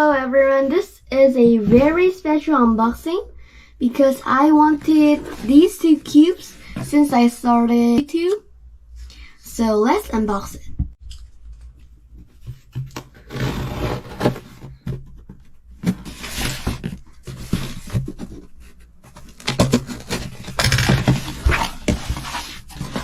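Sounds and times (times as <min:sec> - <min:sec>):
packaging rustling and tearing: 0:12.6 - 0:23.0.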